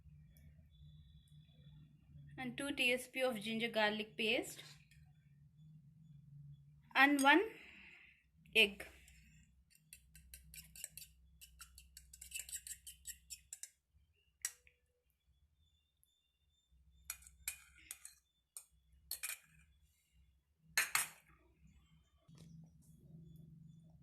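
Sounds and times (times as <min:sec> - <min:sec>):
utensils clinking on a mixing bowl: 0:09.7 - 0:13.8.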